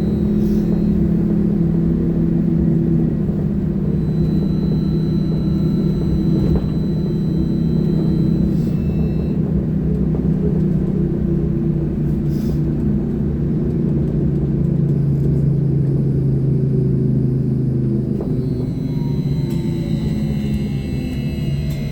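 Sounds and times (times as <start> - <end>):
trolleybus rumble: 0.0 - 21.9
thin high whine: 3.7 - 9.4, 18.2 - 21.9.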